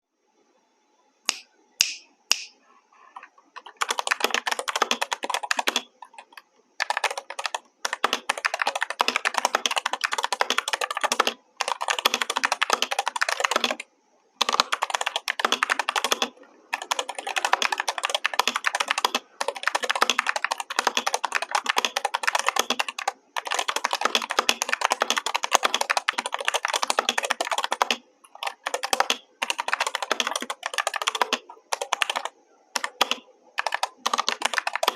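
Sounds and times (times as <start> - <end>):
mechanical keyboard typing: 3.2 - 34.9.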